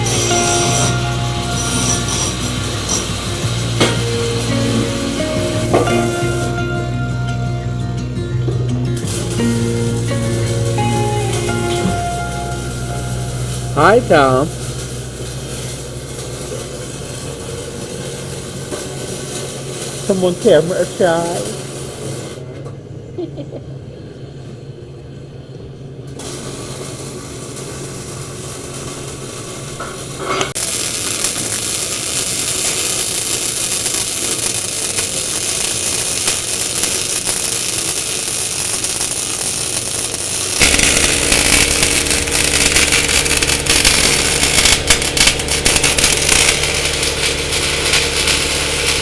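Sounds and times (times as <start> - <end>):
vehicle engine running: 40.6 - 49.0.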